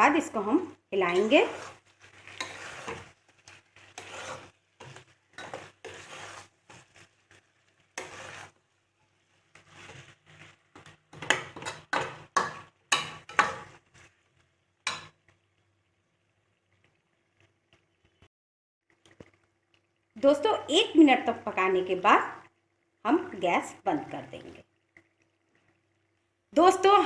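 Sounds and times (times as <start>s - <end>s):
ladle scraping in a pot: 1.1s - 14.2s.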